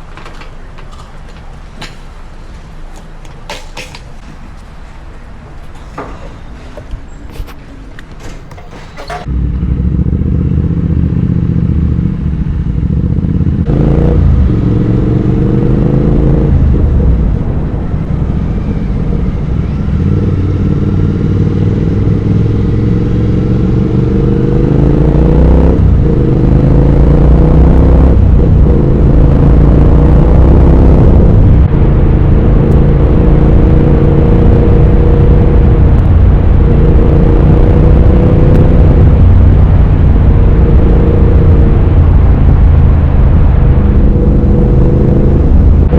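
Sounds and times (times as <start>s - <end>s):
motorcycle engine accelerating: 8.2s - 45.9s.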